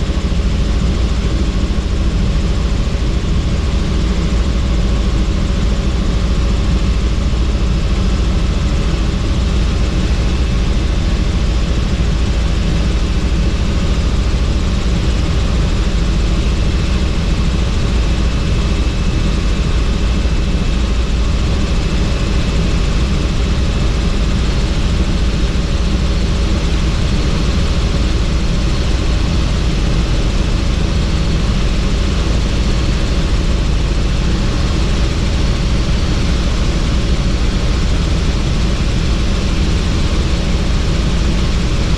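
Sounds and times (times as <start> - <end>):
helicopter rotor and engine rumble: 0.0 - 41.9.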